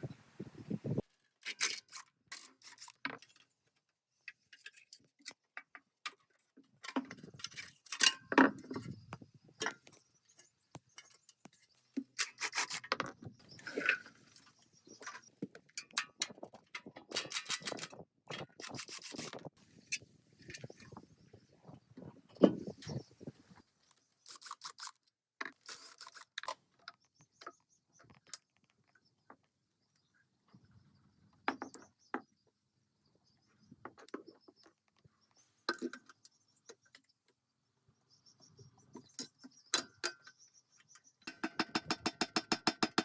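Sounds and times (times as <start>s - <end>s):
tools clicking and knocking: 4.3s - 19.5s, 39.0s - 43.0s.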